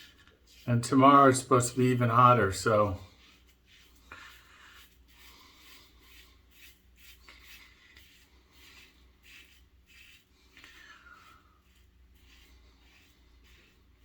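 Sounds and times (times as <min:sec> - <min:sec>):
razor scraping stubble: 0:00.0 - 0:14.0.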